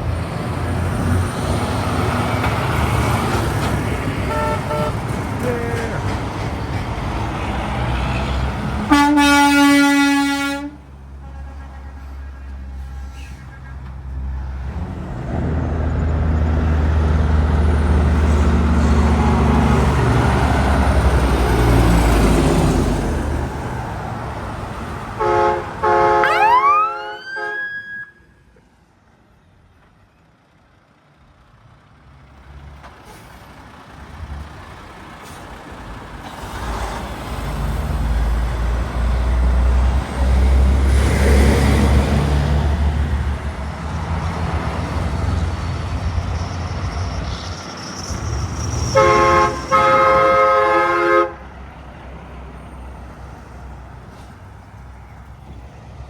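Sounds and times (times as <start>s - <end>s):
heavy trucks passing: 0.0s - 56.0s
truck air horn blasts: 4.3s - 5.9s, 8.8s - 13.8s, 25.2s - 28.4s, 48.6s - 51.5s.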